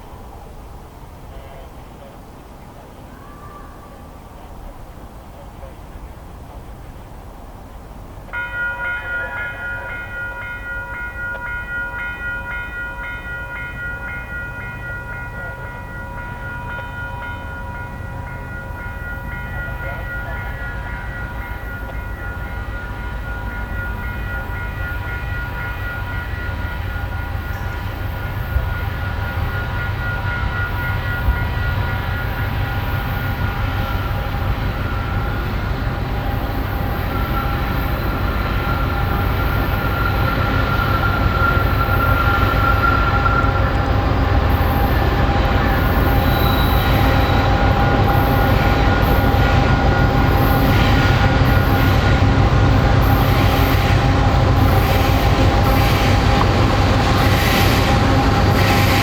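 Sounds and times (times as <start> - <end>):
freight train cars rumbling: 0.0 - 59.0.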